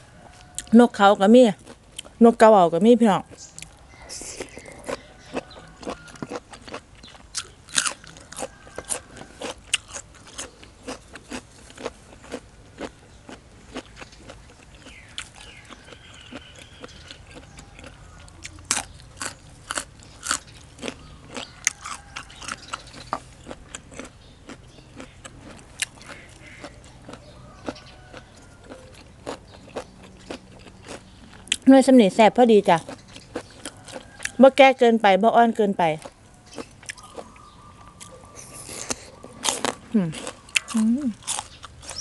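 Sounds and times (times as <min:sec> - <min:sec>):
crunchy chewing close up: 0:00.2 - 0:34.6, 0:35.6 - 0:42.0.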